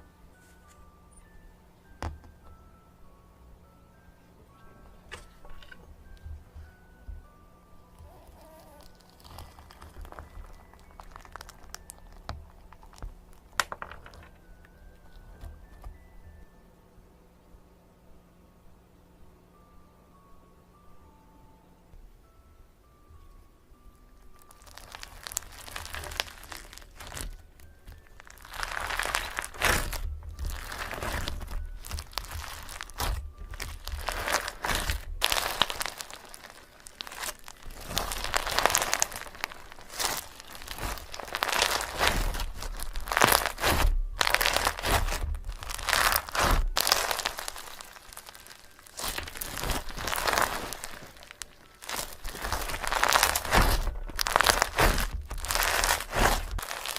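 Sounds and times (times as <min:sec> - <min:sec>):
dry material crinkling: 0:07.8 - 0:16.0, 0:24.2 - 0:56.9.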